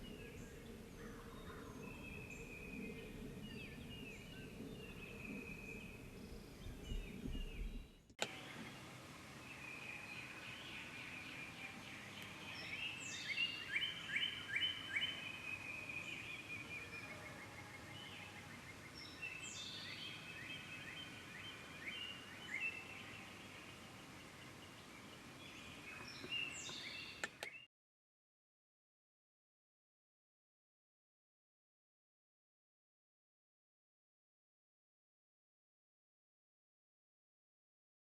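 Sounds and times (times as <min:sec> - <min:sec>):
birds singing and calling: 0:00.0 - 0:27.7.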